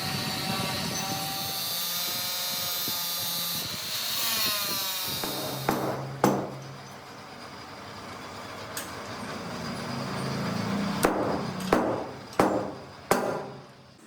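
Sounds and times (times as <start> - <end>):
machine motor whining: 0.0 - 7.0
sharp knocks: 5.2 - 6.8, 11.0 - 13.7.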